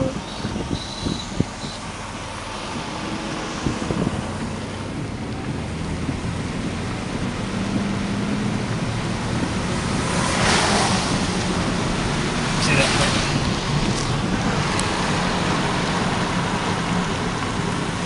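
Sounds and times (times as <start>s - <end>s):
vehicle road rumble: 0.0s - 18.0s
wind rushing: 2.4s - 16.8s.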